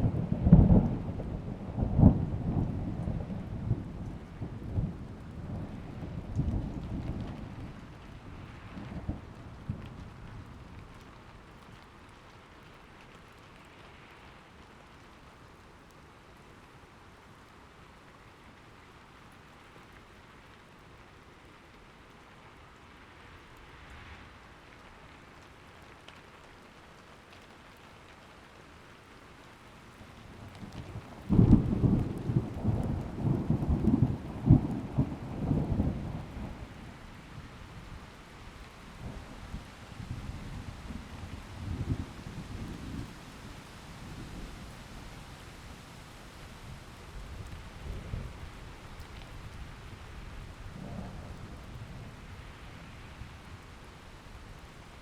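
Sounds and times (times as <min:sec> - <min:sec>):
rolling thunderclap: 0:00.0 - 0:07.9, 0:30.6 - 0:36.9, 0:39.0 - 0:43.2, 0:47.2 - 0:52.3
rain falling: 0:00.0 - 0:55.0.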